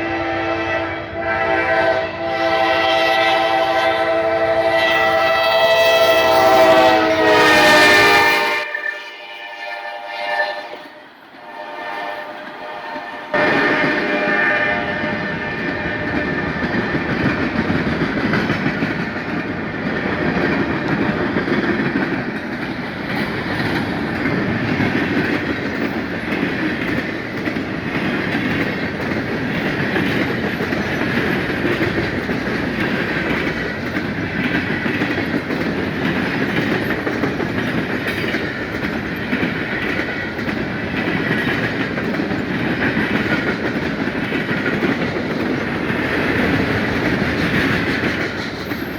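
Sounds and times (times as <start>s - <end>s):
freight train cars rolling past: 0.0s - 48.9s
wheels clicking over rail joints: 15.6s - 48.9s.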